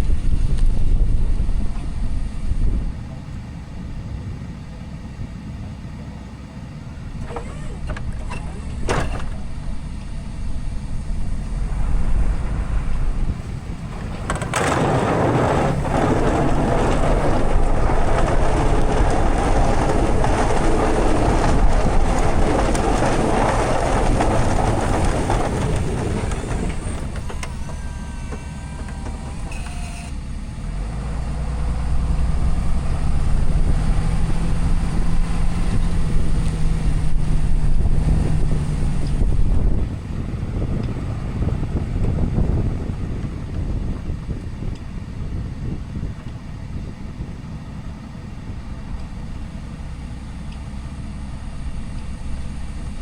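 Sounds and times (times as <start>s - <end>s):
truck engine droning: 0.0s - 53.0s
loud rushing noise: 10.8s - 27.2s.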